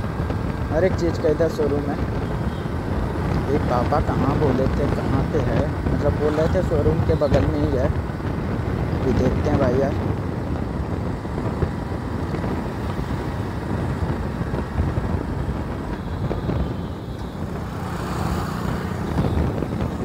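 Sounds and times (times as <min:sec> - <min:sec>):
motorcycle engine running: 0:00.0 - 0:20.0
road and wind noise: 0:00.0 - 0:20.0
vehicle passing alongside: 0:16.5 - 0:20.0.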